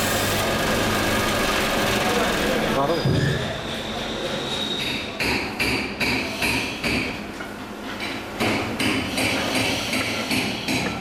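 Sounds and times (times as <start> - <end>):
hammer striking metal: 4.8 - 7.2, 8.1 - 11.0.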